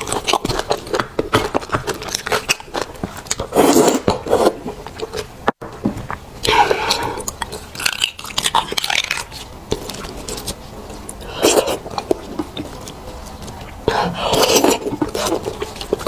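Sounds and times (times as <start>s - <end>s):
chewing and biting: 0.0s - 5.2s, 6.4s - 16.0s.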